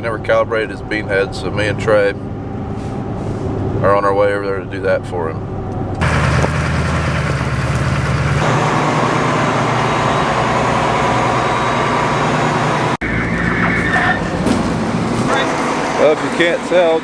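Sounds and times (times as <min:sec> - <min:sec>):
heavy vehicle engine running: 0:05.6 - 0:17.0.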